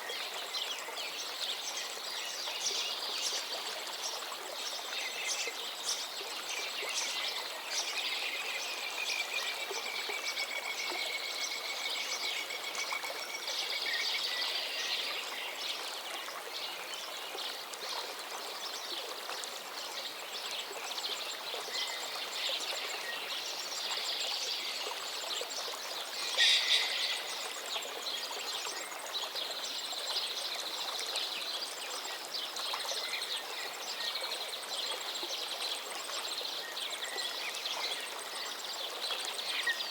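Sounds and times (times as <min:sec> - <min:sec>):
river water flowing: 0:00.0 - 0:39.9
birds singing: 0:26.1 - 0:27.6.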